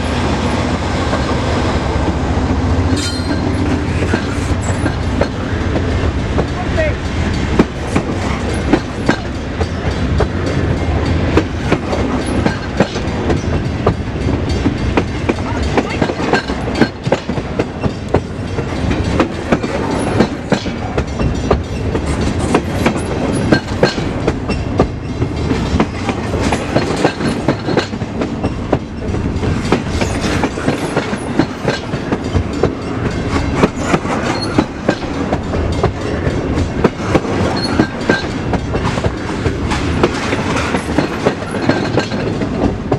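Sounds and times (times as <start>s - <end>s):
freight train rumble: 0.0s - 42.9s
wheels clicking over rail joints: 3.0s - 42.9s.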